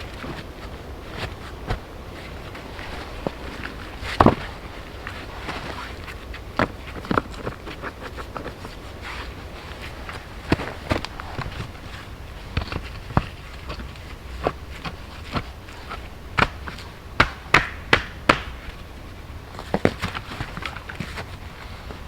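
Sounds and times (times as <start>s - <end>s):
steady low hum: 0.0s - 22.0s
sharp knocks and clicks: 16.4s - 18.6s.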